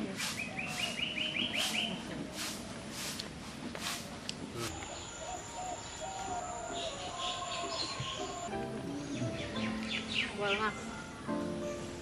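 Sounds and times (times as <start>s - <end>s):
bird chirping rising run: 0.4s - 2.8s.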